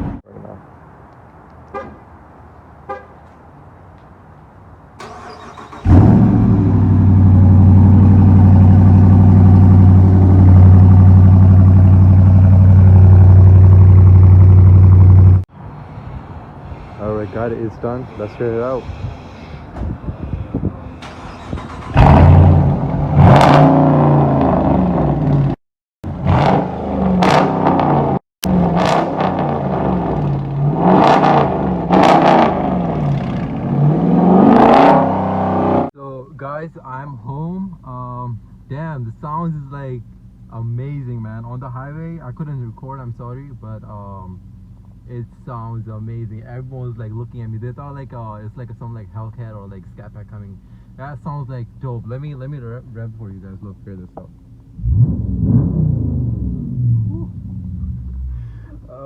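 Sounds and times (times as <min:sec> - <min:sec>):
starter cranking engine: 0:05.0 - 0:06.5, 0:21.0 - 0:22.6
car engine idling deeply: 0:05.0 - 0:15.4, 0:36.9 - 0:54.9
car engine revving: 0:05.0 - 0:15.4, 0:20.8 - 0:35.9, 0:54.6 - 0:58.5.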